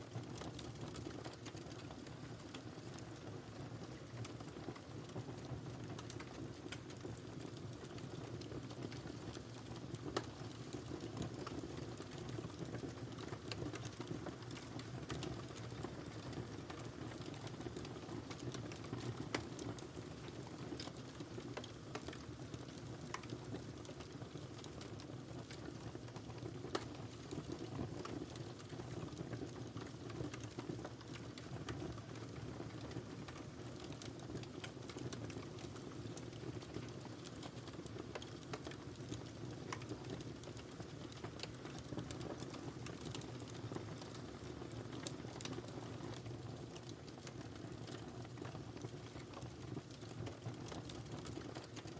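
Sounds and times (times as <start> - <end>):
wood fire crackling: 0.1 - 51.9.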